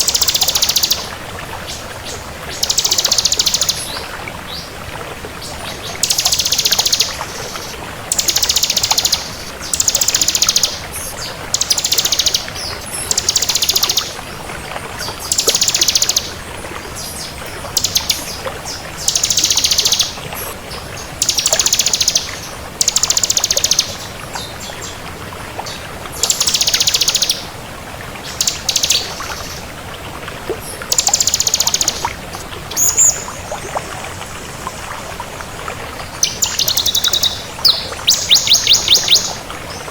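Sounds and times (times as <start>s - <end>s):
bird singing rapid trills: 0.0s - 1.1s, 2.6s - 4.0s, 6.0s - 7.2s, 8.1s - 10.8s, 11.6s - 14.1s, 15.3s - 16.3s, 19.0s - 20.2s, 21.2s - 24.0s, 26.2s - 27.4s, 30.9s - 32.0s, 36.2s - 39.4s.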